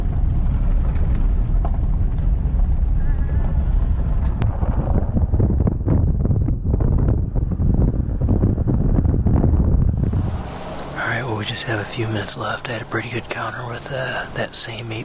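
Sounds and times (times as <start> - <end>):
wind buffeting microphone: 0.0 - 13.6.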